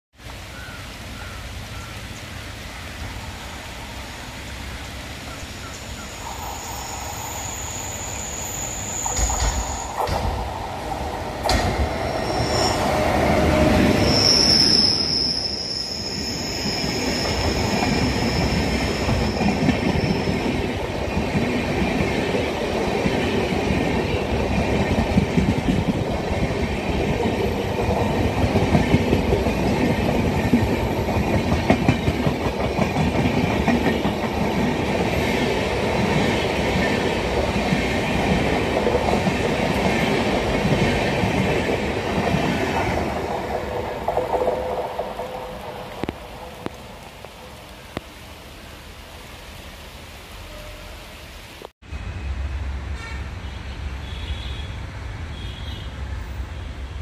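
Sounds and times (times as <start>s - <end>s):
train rumbling past: 0.2s - 54.1s
train wheels squealing: 6.0s - 10.5s, 11.5s - 20.8s
train wheels clickety-clack: 9.0s - 14.6s, 16.6s - 46.8s.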